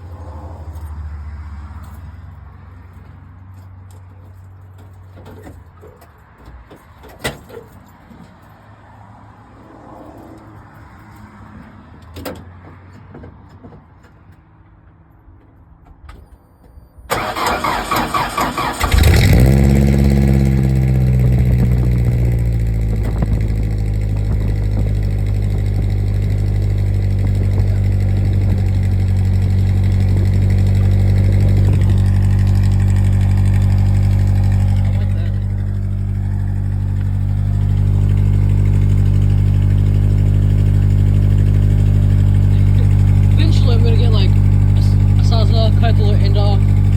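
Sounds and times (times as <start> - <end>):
starter motor cranking: 17.1 - 23.2
pickup engine revving and idling: 17.2 - 46.9.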